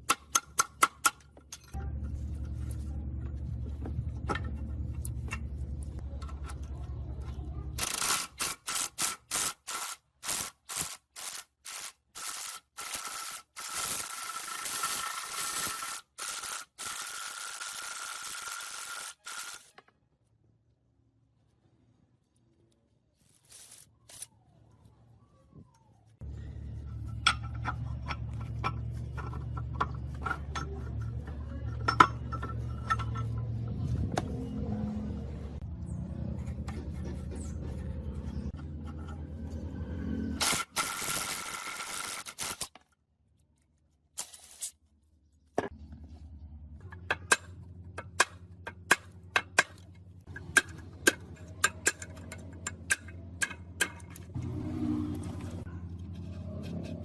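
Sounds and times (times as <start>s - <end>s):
low mechanical hum: 0.0s - 57.0s
metal clinks and scrapes: 26.6s - 33.9s.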